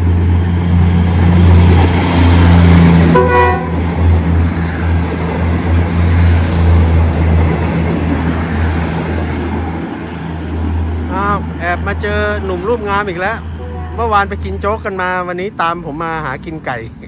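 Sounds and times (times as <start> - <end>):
diesel train rumbling past: 0.0 - 17.0
train horn toot: 3.1 - 3.9, 13.6 - 14.2.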